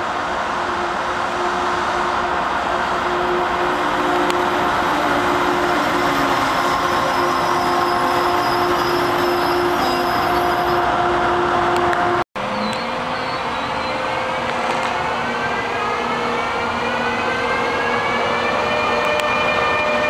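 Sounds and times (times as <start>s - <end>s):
train rolling on rails: 0.0s - 20.0s
train whining tones: 0.0s - 20.0s.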